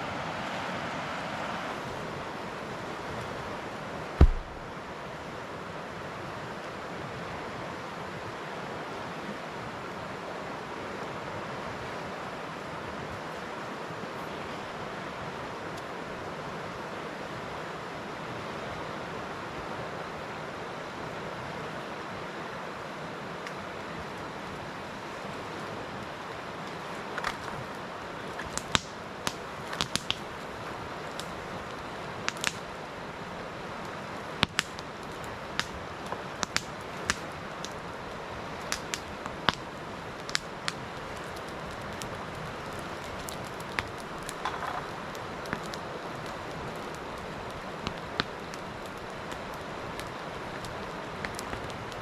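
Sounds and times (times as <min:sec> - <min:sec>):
campfire crackling: 0:00.0 - 0:52.0.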